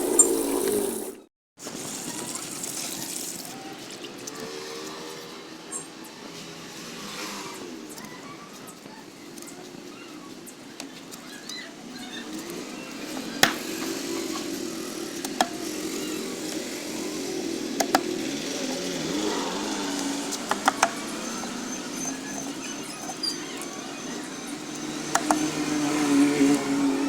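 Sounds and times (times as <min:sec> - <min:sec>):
motor drone wavering: 0:00.0 - 0:01.2, 0:12.2 - 0:27.0.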